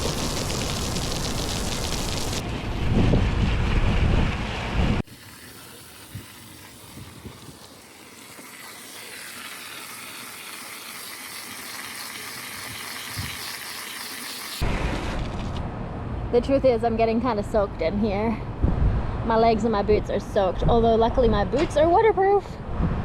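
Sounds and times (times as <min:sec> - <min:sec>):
garden hose spraying water: 0:00.0 - 0:02.4, 0:05.0 - 0:14.7.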